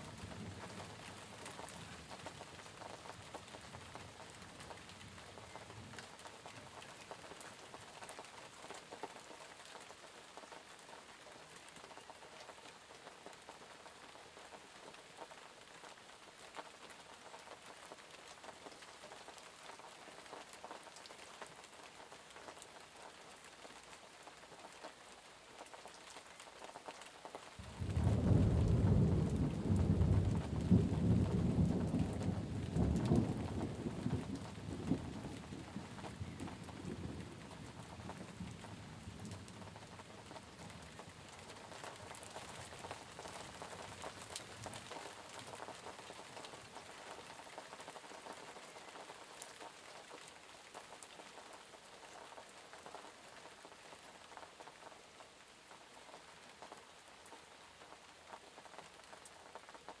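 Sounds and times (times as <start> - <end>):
steady rain falling: 0.0 - 60.0
loud thunder rumble: 27.6 - 37.4.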